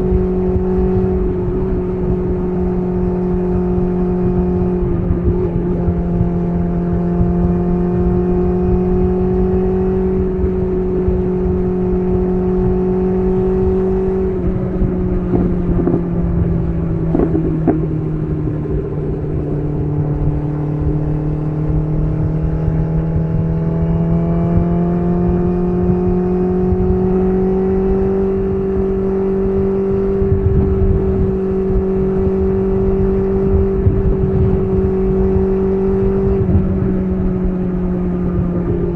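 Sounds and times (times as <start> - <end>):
motorcycle engine revving: 0.0 - 38.9
exhaust cracks: 15.0 - 22.0.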